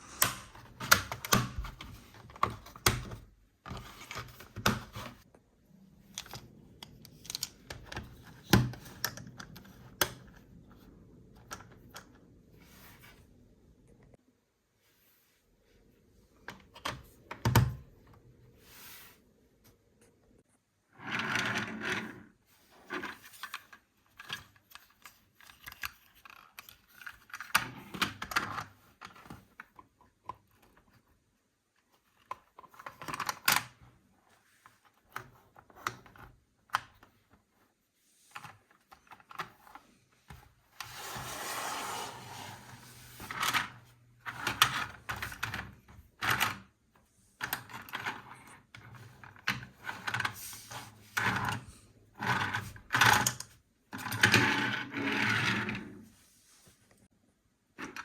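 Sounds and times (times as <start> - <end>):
plastic toys and packaging handled: 22.4 - 54.5.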